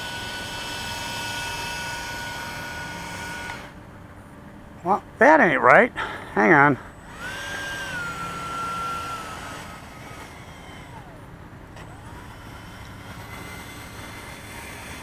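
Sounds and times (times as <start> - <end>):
electric ducted fans whining: 0.0 - 15.0
low steady rumble: 0.0 - 15.0.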